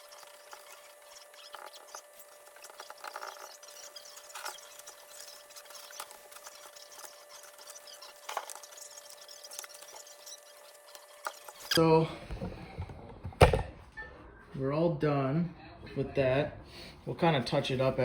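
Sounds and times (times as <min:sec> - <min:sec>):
paper towel scratchy rubbing: 0:00.0 - 0:11.8.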